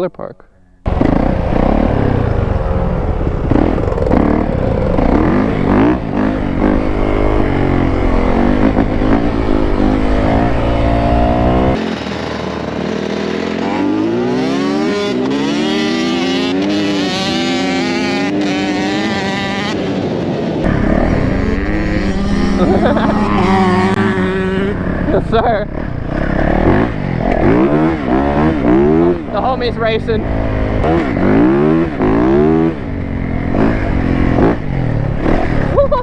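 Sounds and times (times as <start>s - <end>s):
dirt bike engine revving: 0.8s - 12.1s, 20.6s - 35.6s
wind rumble on microphone: 2.0s - 11.8s, 20.6s - 29.3s.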